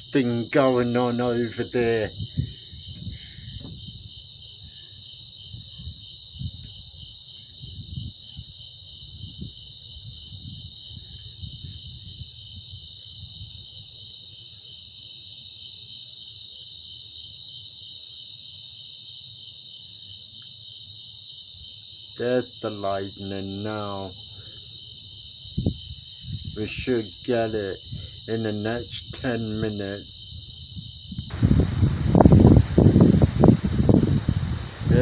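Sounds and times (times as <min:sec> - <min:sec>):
wind buffeting microphone: 0:00.0 - 0:04.2, 0:05.5 - 0:07.0, 0:07.6 - 0:13.5, 0:25.5 - 0:26.8, 0:29.1 - 0:35.0
night insects chirring: 0:00.0 - 0:35.0.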